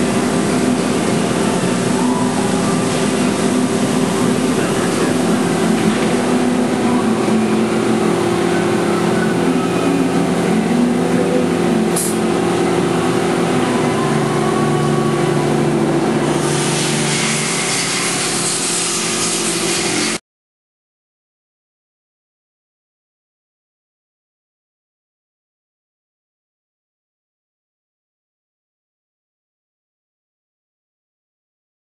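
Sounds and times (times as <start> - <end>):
machine hum with fixed tones: 0.0 - 20.2.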